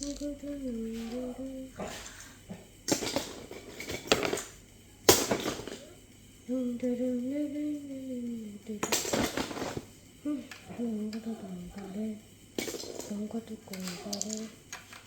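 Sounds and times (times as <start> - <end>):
person humming: 0.0 - 2.8, 5.8 - 9.2, 10.2 - 12.3
plastic bricks clattering: 1.9 - 5.9, 8.8 - 9.9, 12.6 - 15.0.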